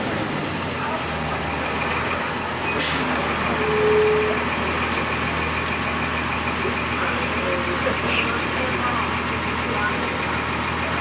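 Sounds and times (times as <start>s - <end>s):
bus diesel engine running: 0.0s - 11.0s
air brake hiss: 2.8s - 3.2s.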